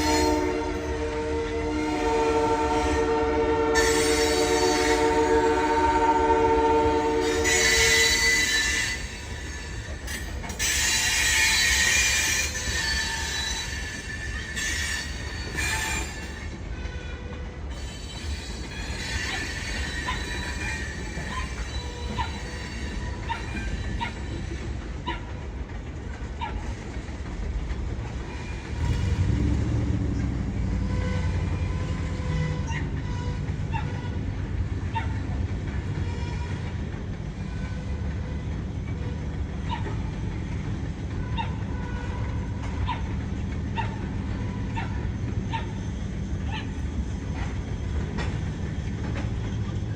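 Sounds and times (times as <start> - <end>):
train wheels squealing on rails: 0.0 - 49.9
wheels clicking over rail joints: 7.2 - 49.9.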